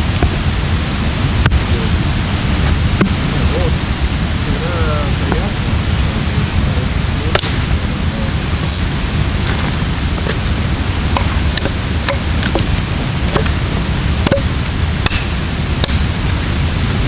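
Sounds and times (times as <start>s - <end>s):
steady rushing noise: 0.0s - 17.0s
axe chopping into log: 14.2s - 16.1s.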